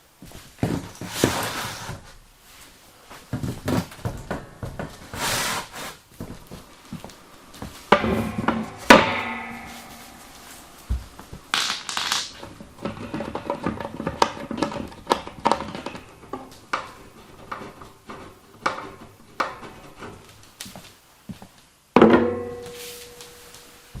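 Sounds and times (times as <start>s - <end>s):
metallic clanks: 7.9s - 11.3s.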